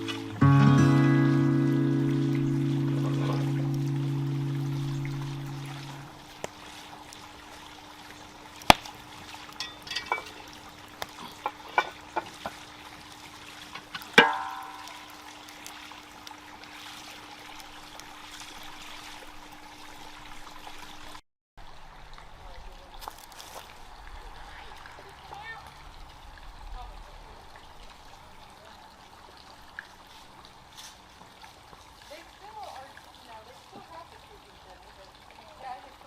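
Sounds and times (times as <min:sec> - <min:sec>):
low liquid-like hiss: 0:00.0 - 0:35.9
faint steady hum: 0:01.1 - 0:11.0
metal cookware clinking: 0:09.6 - 0:10.5, 0:14.2 - 0:15.1
loud ringing metal clang: 0:14.2 - 0:15.2.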